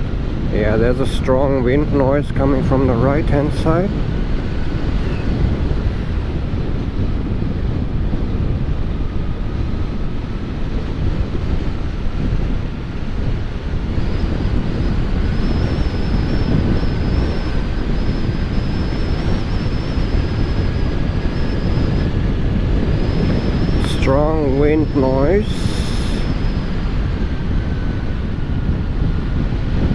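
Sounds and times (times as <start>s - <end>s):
wind buffeting microphone: 0.0s - 29.9s
faint thin high whine: 0.5s - 6.4s, 11.2s - 29.7s.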